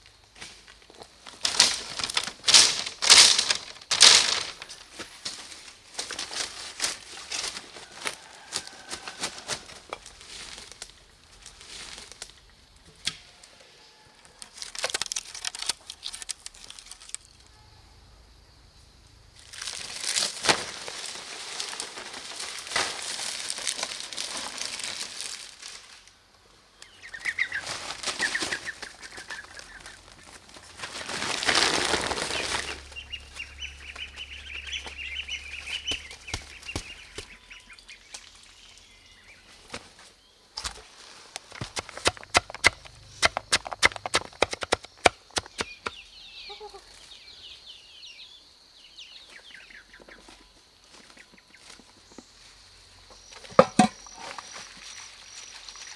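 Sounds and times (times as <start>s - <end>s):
rustling and flapping: 1.0s - 10.9s, 27.6s - 37.5s, 39.6s - 46.0s.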